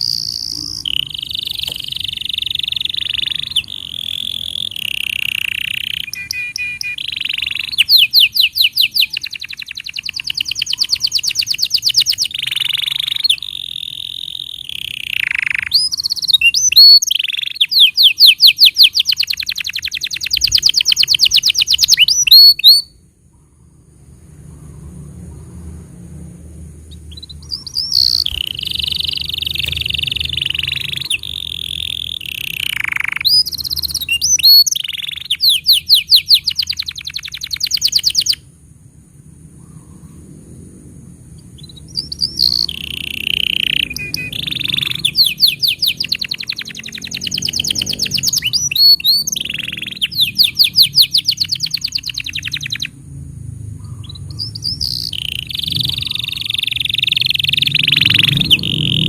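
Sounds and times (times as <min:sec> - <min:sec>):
canary singing: 0:00.0 - 0:23.1, 0:26.8 - 0:38.5, 0:41.3 - 0:53.0, 0:53.7 - 0:59.0
low background hum: 0:18.9 - 0:59.0.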